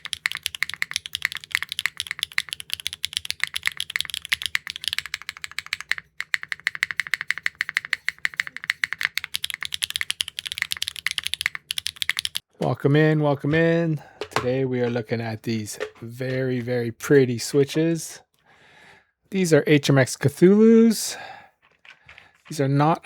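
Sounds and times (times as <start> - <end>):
fast typing on mechanical keyboard: 0.0 - 12.4.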